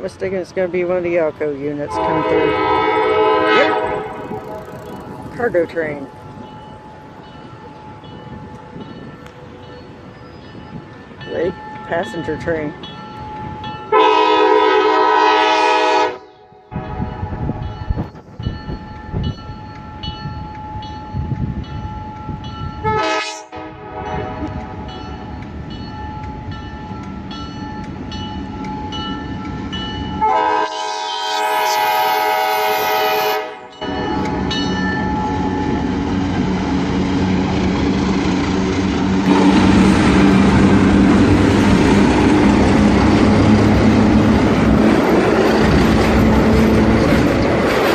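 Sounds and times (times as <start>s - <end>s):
train rumble: 0.0s - 47.9s
train horn blasts: 1.8s - 5.0s, 13.9s - 17.5s, 22.8s - 24.7s, 30.2s - 34.0s.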